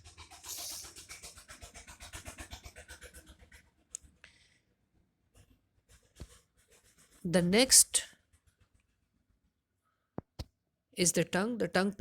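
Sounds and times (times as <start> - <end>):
pen scratching on paper: 0.0 - 3.7, 5.4 - 9.1.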